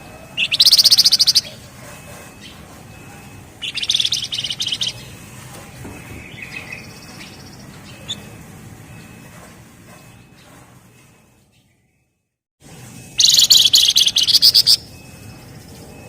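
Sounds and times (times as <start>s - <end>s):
bird rattling trill: 0.3s - 5.3s, 13.2s - 15.4s
soft bird chirps: 0.4s - 1.6s, 3.6s - 9.2s, 13.2s - 16.0s.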